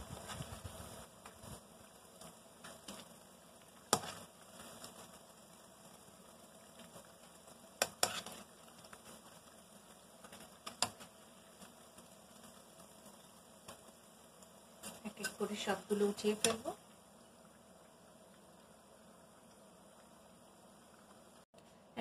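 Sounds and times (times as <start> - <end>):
food frying in hot oil: 0.0 - 21.5
metal utensils clicking on pan: 7.8 - 8.4, 10.2 - 11.1, 14.8 - 16.8.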